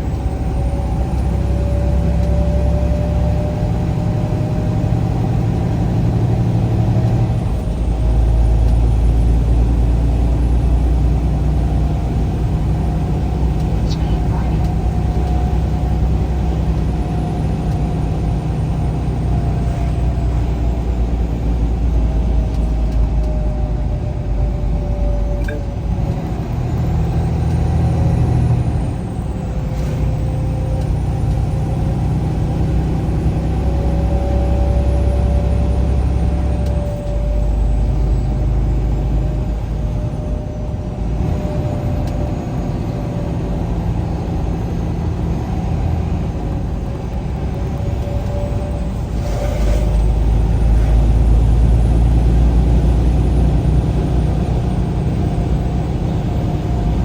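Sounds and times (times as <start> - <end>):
vehicle engine and road rumble: 0.0 - 57.0
faint whine: 13.6 - 14.8.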